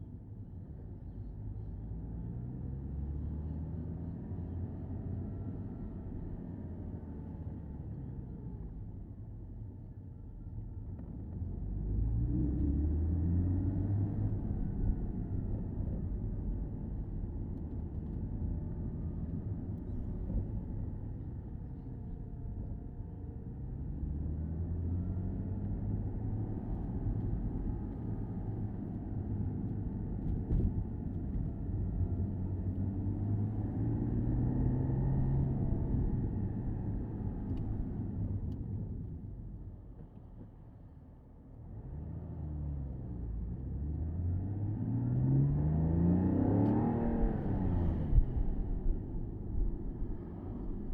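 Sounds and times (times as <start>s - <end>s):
road and tyre noise: 0.0s - 50.9s
car engine accelerating: 23.5s - 40.4s, 41.6s - 50.9s.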